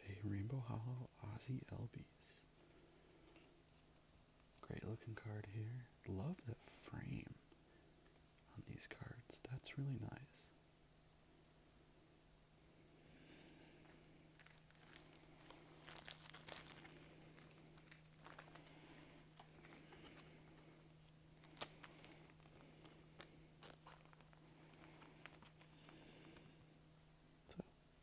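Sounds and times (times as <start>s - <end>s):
cards clicking and crackling: 13.8s - 26.5s
foil wrapper crinkling and tearing: 13.8s - 26.5s.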